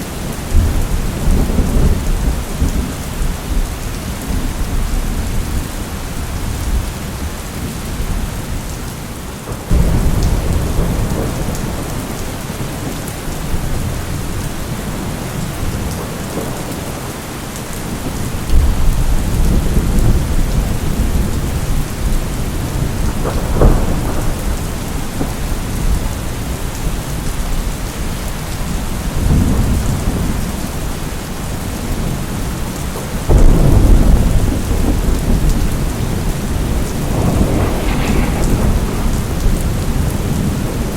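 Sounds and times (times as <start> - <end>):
heavy rain: 0.0 - 40.9
sharp thunder crack: 9.7 - 12.0, 33.3 - 40.9
thunder rumbling: 9.7 - 16.6, 18.0 - 26.6, 33.2 - 40.9.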